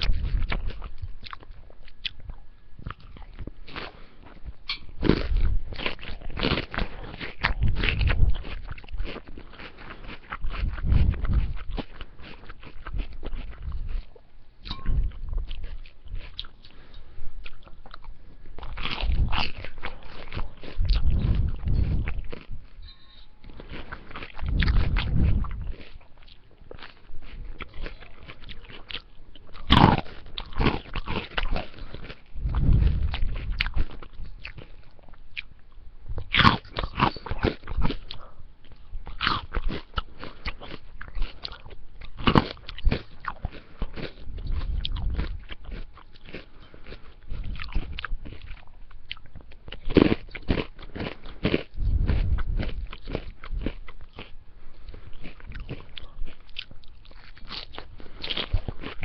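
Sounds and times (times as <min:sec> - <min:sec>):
close chewing: 0:00.0 - 0:59.0
sharp crunching bites: 0:29.6 - 0:34.7, 0:36.3 - 0:38.1.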